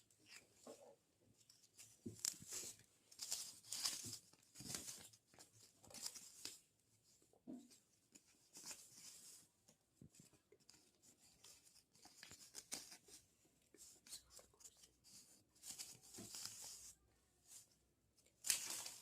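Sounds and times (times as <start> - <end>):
packaging rustling and tearing: 18.4 - 19.0.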